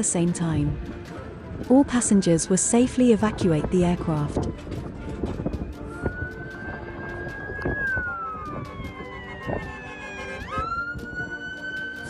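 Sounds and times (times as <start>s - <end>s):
emergency siren wailing: 4.3s - 12.0s.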